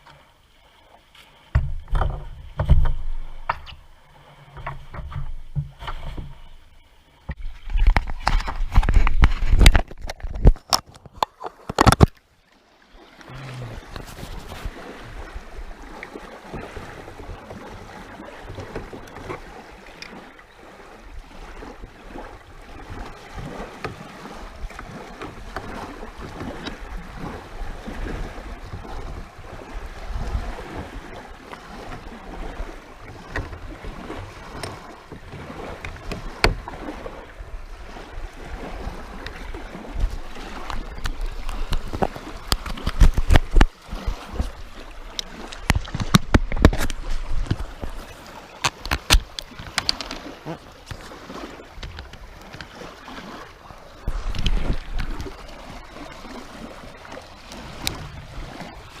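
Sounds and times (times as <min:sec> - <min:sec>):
water splashing around kayak: 0:00.0 - 0:59.0
loud knocks: 0:01.5 - 0:03.7.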